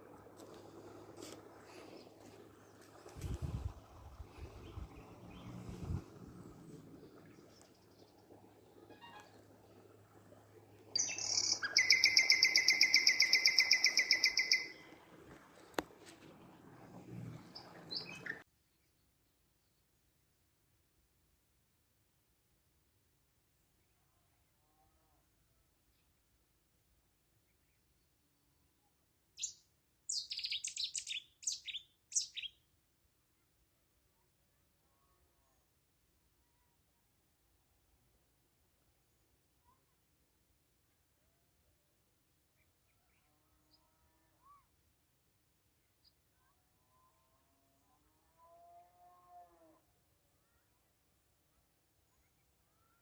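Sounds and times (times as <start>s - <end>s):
songbird trilling: 11.0s - 14.8s.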